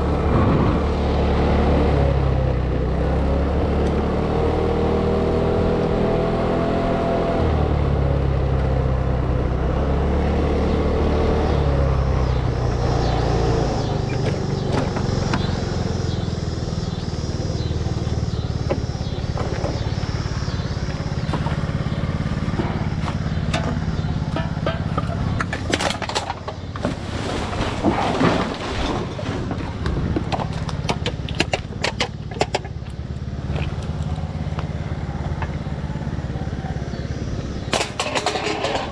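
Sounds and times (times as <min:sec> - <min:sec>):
vehicle engine running: 0:00.0 - 0:38.9
sharp clicks and knocks: 0:22.6 - 0:26.9, 0:29.8 - 0:34.2.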